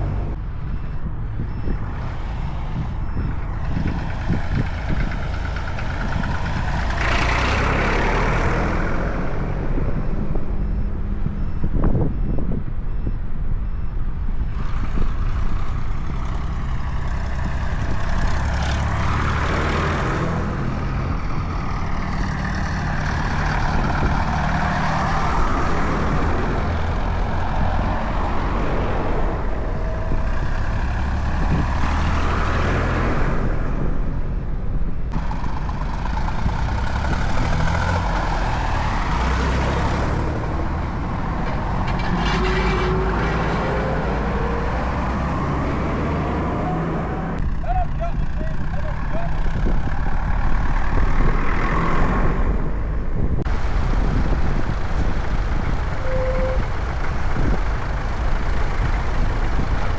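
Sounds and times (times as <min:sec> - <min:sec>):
tractor diesel engines droning: 0:00.0 - 0:59.9.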